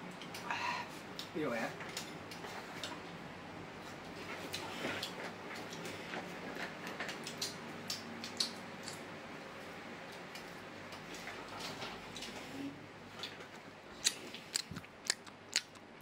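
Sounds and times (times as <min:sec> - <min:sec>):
crunchy chewing crackles: 0:03.8 - 0:12.4, 0:13.1 - 0:16.0.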